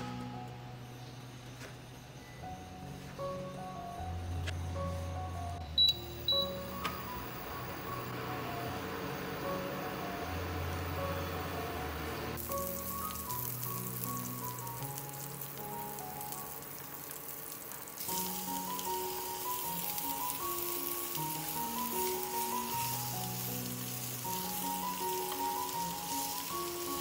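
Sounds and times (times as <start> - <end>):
soft background music: 0.0 - 27.0
oil sizzling in a frying pan: 12.4 - 27.0.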